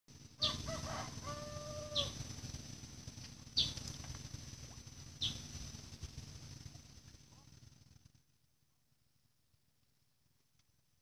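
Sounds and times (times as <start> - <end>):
low rumble: 0.1 - 8.3.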